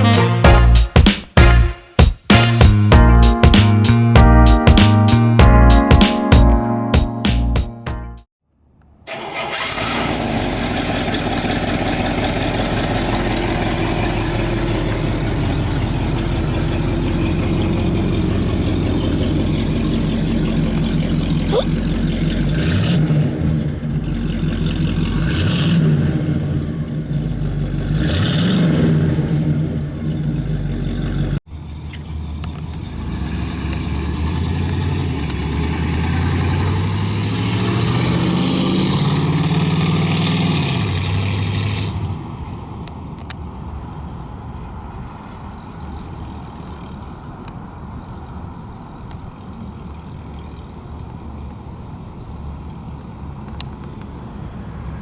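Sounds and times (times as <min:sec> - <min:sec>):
car engine revving: 0:09.1 - 0:42.6.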